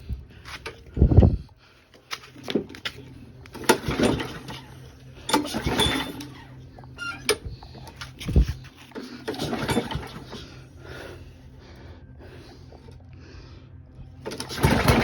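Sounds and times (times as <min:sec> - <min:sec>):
mower parts knocking and clattering: 0:02.1 - 0:10.6, 0:14.2 - 0:15.0
rattling: 0:03.5 - 0:10.6, 0:14.2 - 0:15.0.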